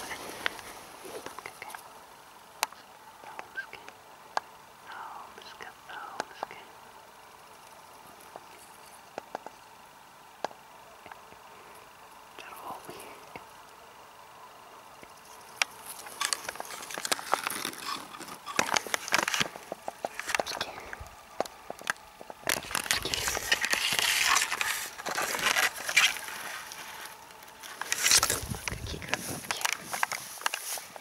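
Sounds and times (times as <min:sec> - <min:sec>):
grass rustling underfoot: 0:00.0 - 0:02.0, 0:15.0 - 0:31.0.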